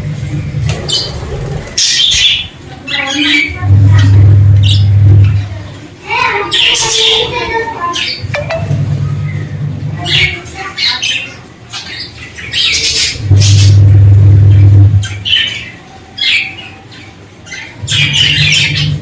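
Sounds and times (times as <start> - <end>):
budgerigars chattering and squawking: 0.7 - 3.6, 15.0 - 19.0
loud low hum: 3.7 - 5.6, 8.3 - 10.0, 13.0 - 15.4.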